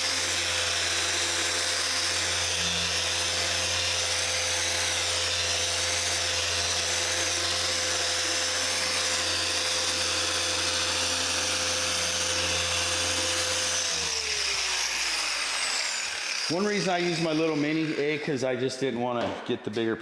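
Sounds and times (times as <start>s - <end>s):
polisher motor whining: 0.0s - 18.4s.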